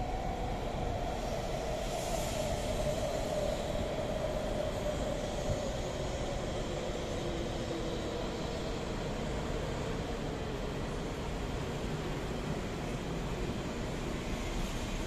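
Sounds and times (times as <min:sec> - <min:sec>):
train rumbling past with whine: 0:00.0 - 0:15.0.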